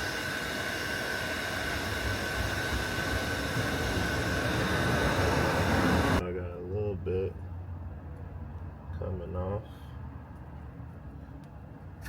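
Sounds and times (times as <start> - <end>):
hot-air blower hissing and whining: 0.0 - 6.2.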